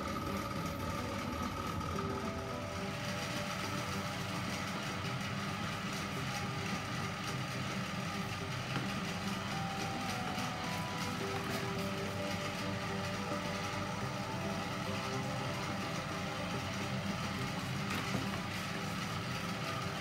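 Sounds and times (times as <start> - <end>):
gas stove burner rumbling: 0.0 - 20.0.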